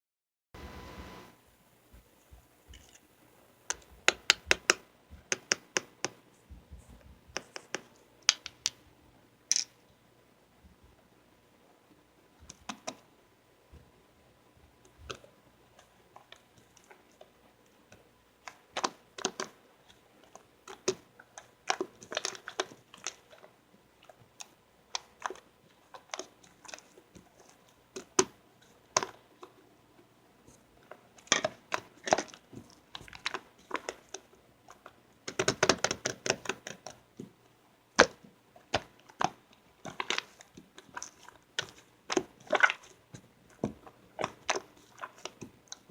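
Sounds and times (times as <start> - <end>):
slime squishing with sticky clicks: 15.8 - 29.6, 30.5 - 45.9.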